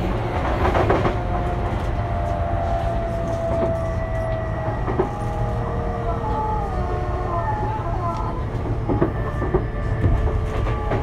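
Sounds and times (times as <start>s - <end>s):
thin train whine: 0.0s - 11.0s
train rumble: 0.0s - 11.0s.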